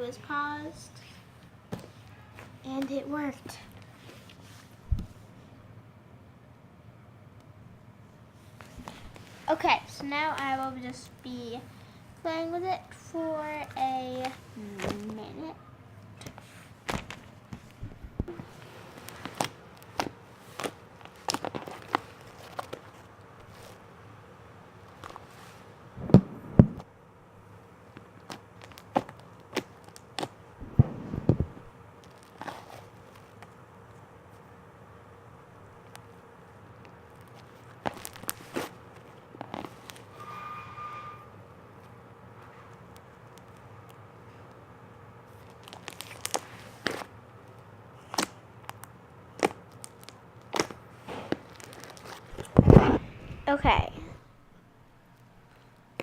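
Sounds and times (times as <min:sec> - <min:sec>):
slime squished by hand: 0:48.0 - 0:53.0.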